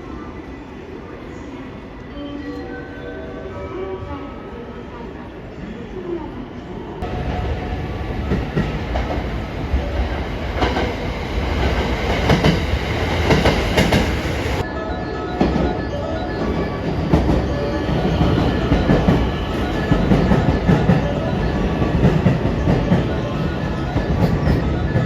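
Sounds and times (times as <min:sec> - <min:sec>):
wheels clacking over rail joints: 0:07.0 - 0:14.6
train rumble: 0:07.0 - 0:14.7, 0:16.7 - 0:25.0.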